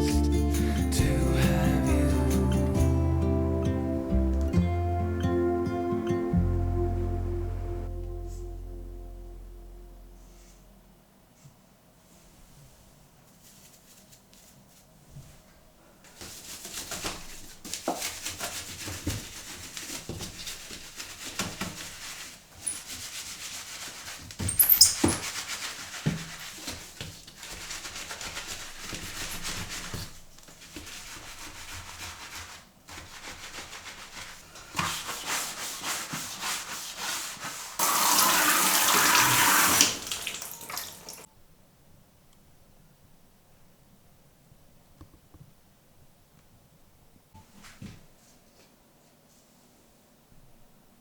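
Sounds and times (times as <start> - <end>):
scrubbing strokes: 16.1 - 41.3
running water in sink: 22.6 - 30.1, 33.3 - 41.3
tap running full: 37.8 - 41.3.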